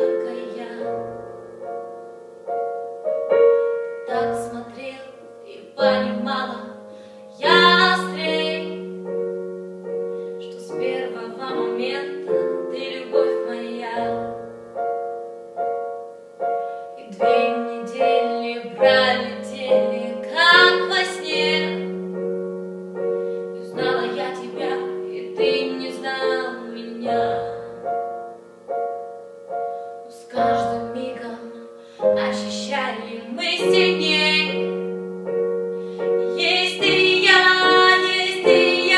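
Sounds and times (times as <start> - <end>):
woman singing: 0.0 - 1.2, 3.9 - 9.0, 10.4 - 14.4, 17.0 - 22.1, 23.5 - 28.0, 30.1 - 35.0, 36.2 - 38.9
piano accompaniment: 0.0 - 38.9.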